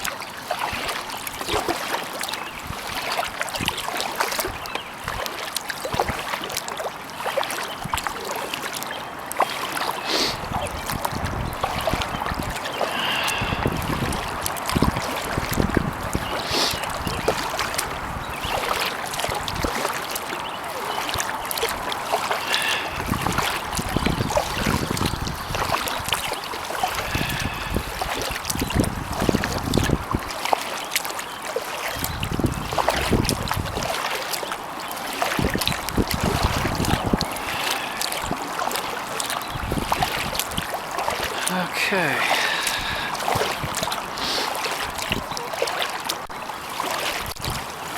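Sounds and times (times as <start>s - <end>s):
paddle strokes in water: 0.0s - 47.9s
wind rumbling on microphone: 2.5s - 5.3s, 10.3s - 19.8s, 21.2s - 30.4s, 31.9s - 34.0s, 35.3s - 41.4s, 42.5s - 45.4s, 47.2s - 47.9s.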